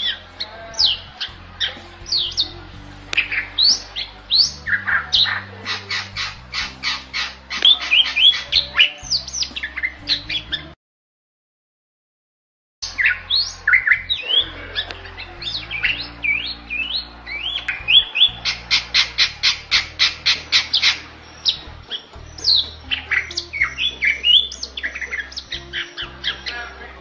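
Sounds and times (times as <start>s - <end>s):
bird whistling: 12.8s - 26.5s.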